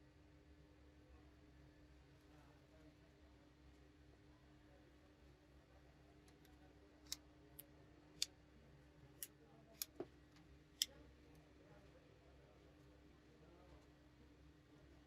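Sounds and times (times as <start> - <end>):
small clicks and taps of parts: 9.2 - 11.0.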